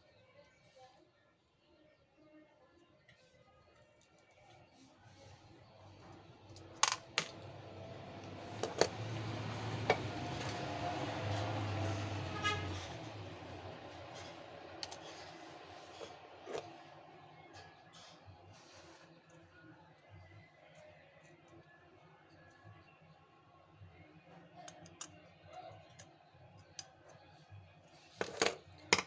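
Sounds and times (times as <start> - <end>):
metal tools clicking and tapping: 8.2 - 10.5, 28.2 - 29.0.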